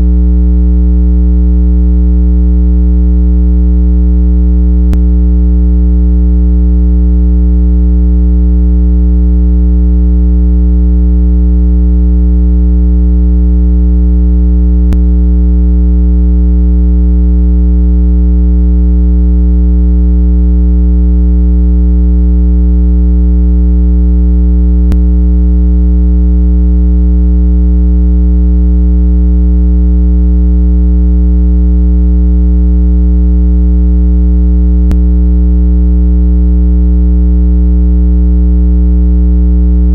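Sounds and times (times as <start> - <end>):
low electronic test tone: 0.0 - 0.5, 4.8 - 5.9, 14.8 - 15.3, 24.8 - 25.1, 34.8 - 35.0.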